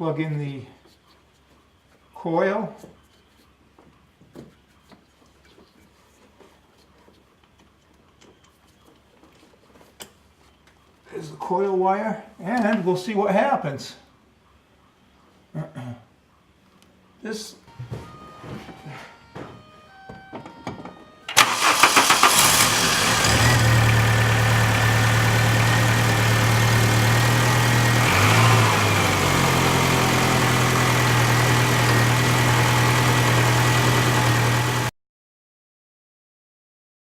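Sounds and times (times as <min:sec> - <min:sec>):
car engine cranking and idling: 0:21.3 - 0:34.9.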